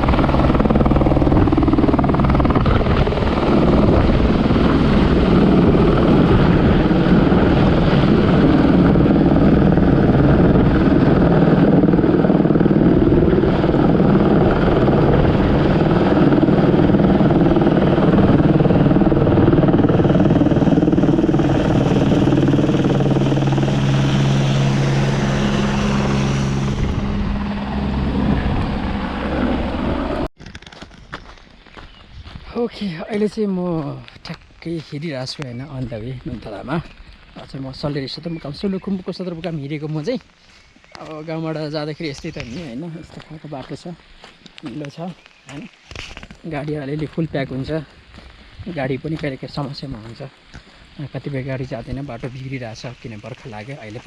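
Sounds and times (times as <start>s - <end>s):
helicopter rotor beat: 0.0s - 30.3s, 34.7s - 54.0s
turbine whine: 0.0s - 30.3s.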